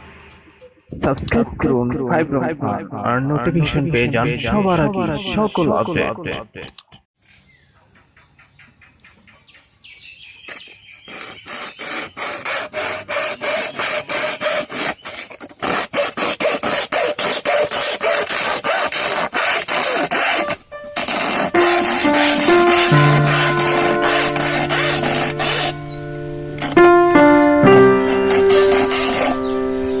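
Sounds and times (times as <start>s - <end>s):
hand tool rasping strokes: 10.6s - 26.0s, 26.6s - 30.0s.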